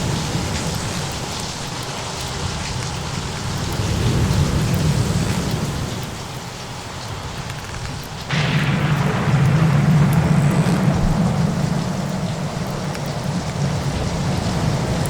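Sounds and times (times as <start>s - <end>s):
steady rain: 0.0s - 15.0s
thunder rumbling: 8.3s - 15.0s.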